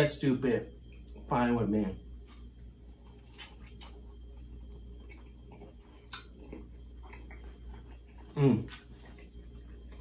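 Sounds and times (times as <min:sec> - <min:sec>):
low steady hum: 0:00.0 - 0:10.0
chewing crisp food: 0:02.2 - 0:10.0.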